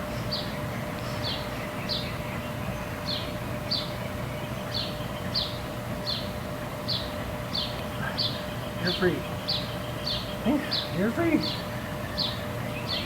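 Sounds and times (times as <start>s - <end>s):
faint steady hum: 0.0s - 13.0s
small bird chirping: 6.9s - 13.0s.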